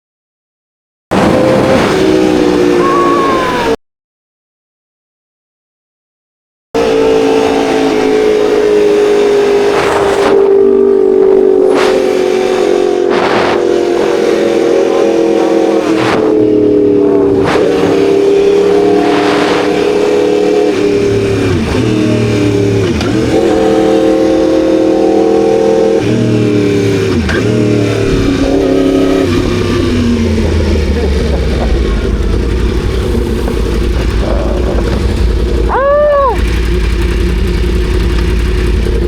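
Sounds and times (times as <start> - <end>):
motorcycle engine running: 6.8 - 39.0
low rumble: 28.0 - 39.0.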